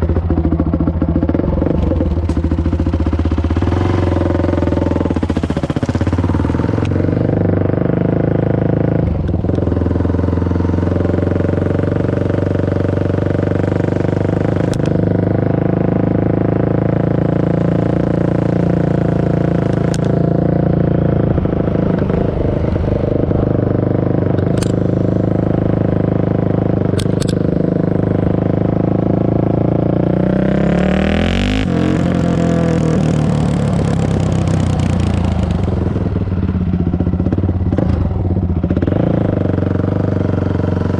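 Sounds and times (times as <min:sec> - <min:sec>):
motorcycle engine running loud: 0:00.0 - 0:40.9.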